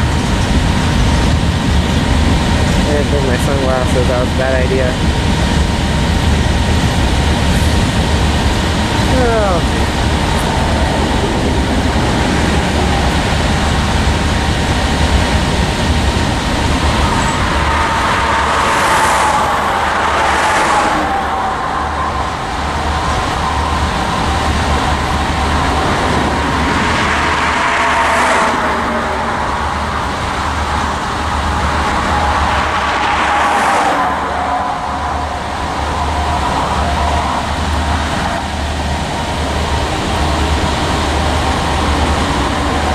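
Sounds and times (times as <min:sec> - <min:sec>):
steel wheels rumbling on rail: 0:00.0 - 0:42.9
faint wheel squeal: 0:16.6 - 0:38.8.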